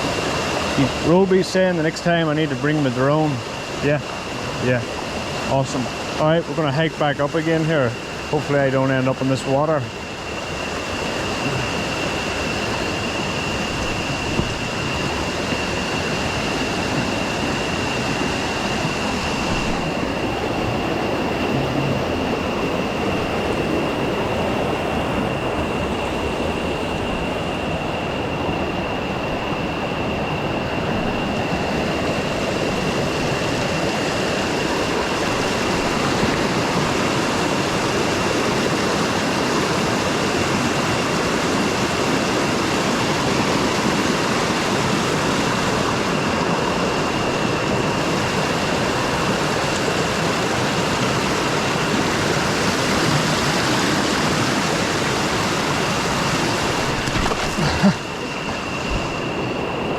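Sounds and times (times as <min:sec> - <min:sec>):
thin high whine: 0:00.0 - 0:59.9
river rushing over rocks: 0:47.6 - 0:59.5.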